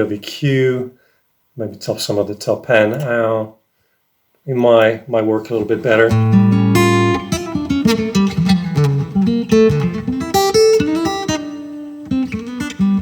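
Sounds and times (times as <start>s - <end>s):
acoustic guitar picking single notes: 5.6s - 13.0s.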